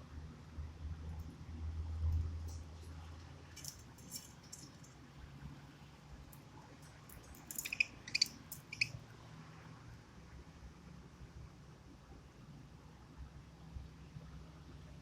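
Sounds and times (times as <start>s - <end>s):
budgerigars chirping: 7.6s - 8.9s.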